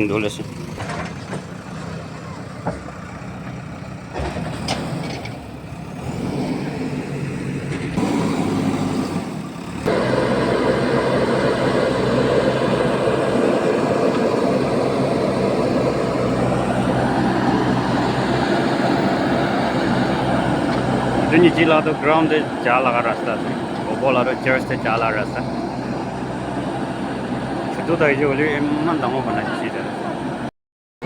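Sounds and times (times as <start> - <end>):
diesel excavator engine revving: 0.0 - 30.5.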